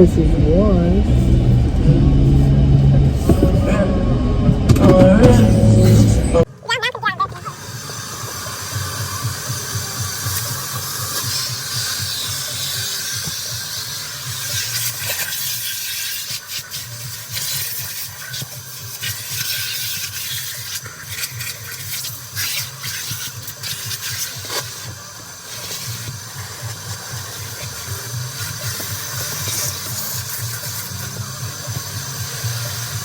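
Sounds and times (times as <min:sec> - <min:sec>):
vacuum cleaner running: 0:07.3 - 0:15.4.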